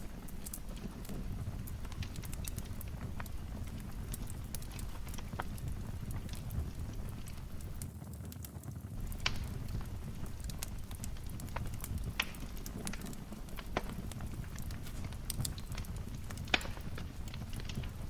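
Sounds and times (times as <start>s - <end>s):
wood fire crackling in fireplace: 0.0s - 18.0s.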